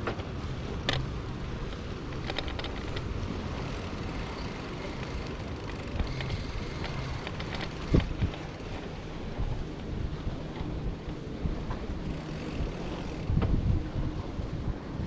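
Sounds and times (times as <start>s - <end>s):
light clicks and rattles: 0.0s - 9.6s
bicycle tyres rumbling: 0.0s - 14.5s
wind on microphone: 0.0s - 15.0s.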